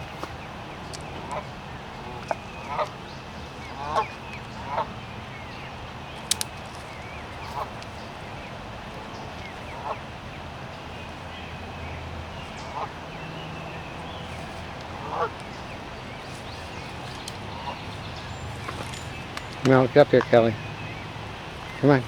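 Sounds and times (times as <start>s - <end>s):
sharp click: 6.3s - 6.6s
geese honking: 12.5s - 22.0s.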